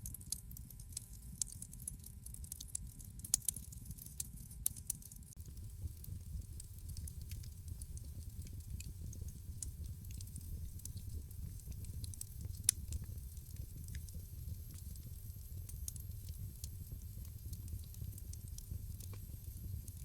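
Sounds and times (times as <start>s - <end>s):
fire popping and crackling: 5.4s - 20.0s
low rumble of flames: 5.4s - 20.0s.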